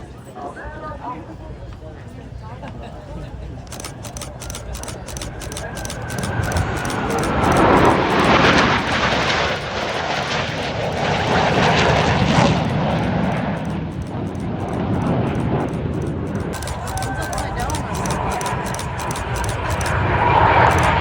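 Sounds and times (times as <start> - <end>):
aircraft engine flying past: 3.5 - 21.0.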